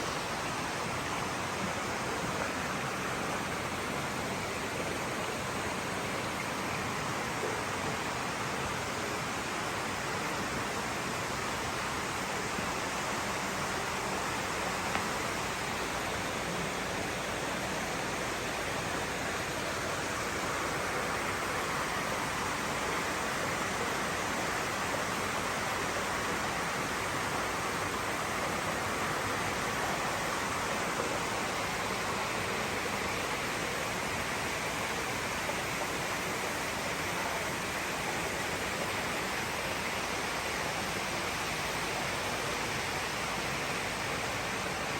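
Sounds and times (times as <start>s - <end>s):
running water: 0.0s - 44.9s.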